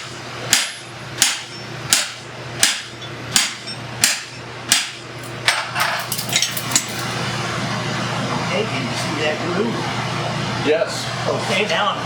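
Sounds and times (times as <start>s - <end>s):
hammer striking steel on anvil: 0.0s - 7.0s.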